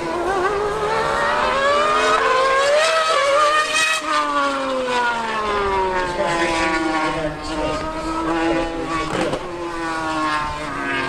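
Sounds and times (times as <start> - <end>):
racing engines accelerating: 0.0 - 11.0.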